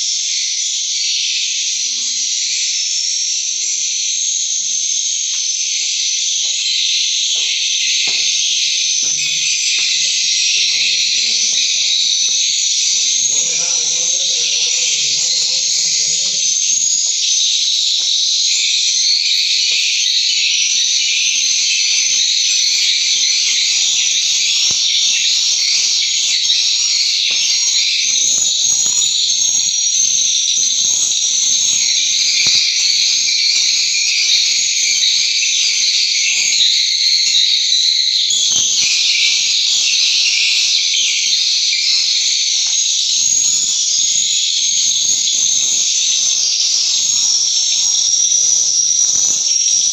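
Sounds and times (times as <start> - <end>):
swiftlets twittering: 3.4 - 29.0.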